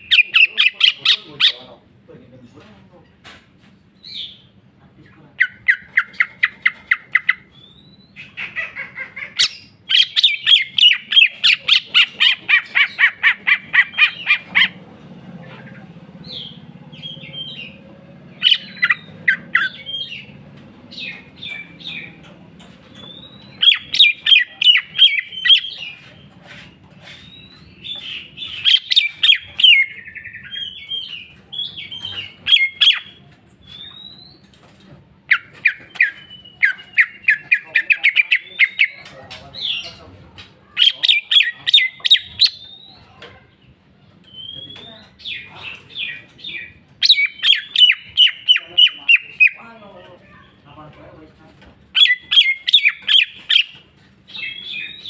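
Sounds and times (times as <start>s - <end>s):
bird singing rattling trills: 9.4s - 14.8s, 15.8s - 22.3s, 27.1s - 34.6s, 44.3s - 49.7s, 51.9s - 55.0s.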